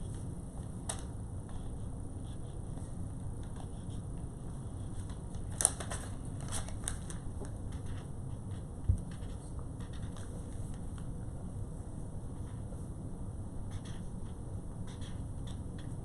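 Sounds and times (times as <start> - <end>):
highlighter scratching on paper: 1.4 - 5.2, 7.7 - 10.8, 13.7 - 16.0.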